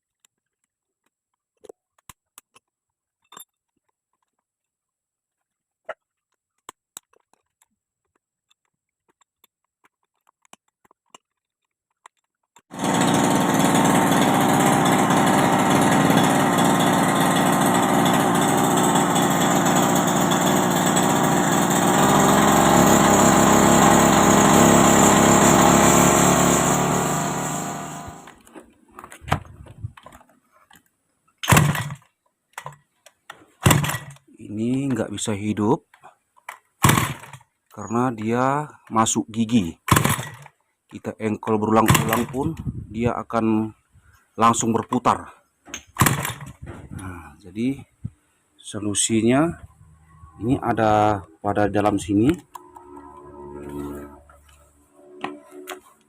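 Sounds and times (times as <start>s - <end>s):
grass cutter engine running: 12.7s - 28.5s, 31.4s - 32.0s, 33.6s - 35.0s, 36.8s - 37.4s, 39.8s - 40.5s, 41.8s - 42.6s, 46.0s - 47.2s, 51.6s - 56.0s.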